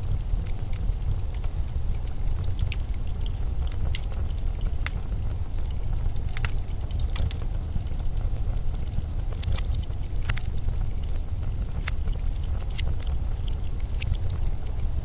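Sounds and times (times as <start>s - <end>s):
sharp ticks: 0.3s - 14.9s.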